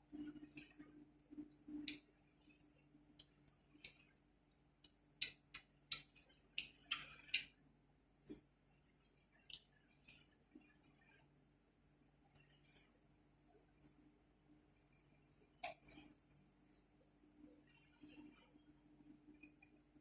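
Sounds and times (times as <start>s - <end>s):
faint steady hum: 0.0s - 20.0s
light clicks and taps: 0.5s - 7.6s.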